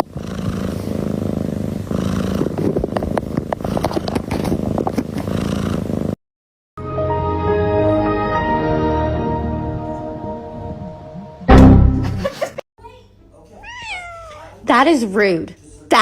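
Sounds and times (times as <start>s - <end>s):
cat purring: 0.0s - 6.2s
music: 6.8s - 12.3s.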